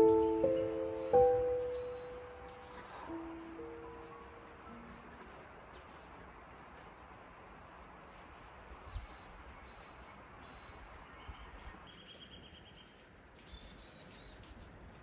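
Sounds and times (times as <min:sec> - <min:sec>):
small birds calling: 0:00.0 - 0:04.1, 0:08.1 - 0:14.5
soft outdoor ambience: 0:00.0 - 0:15.0.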